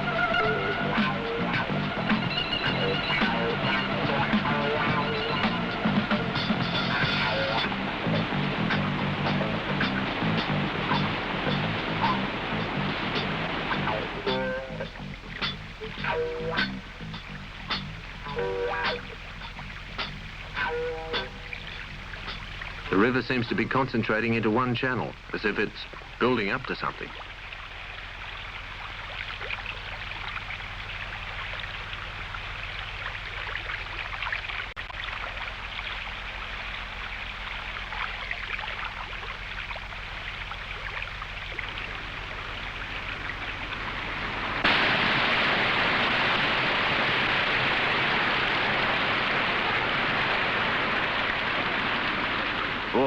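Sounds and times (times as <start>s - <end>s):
river water rushing through rapids: 0.0s - 14.8s, 42.0s - 53.0s
waterfall rushing: 0.0s - 24.4s, 41.1s - 53.0s.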